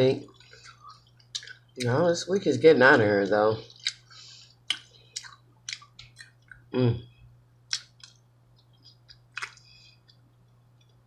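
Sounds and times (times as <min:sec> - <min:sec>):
steady low hum: 0:00.0 - 0:11.0
wet chewing mouth clicks: 0:00.4 - 0:01.9, 0:03.6 - 0:06.7
person humming mm: 0:06.7 - 0:07.1.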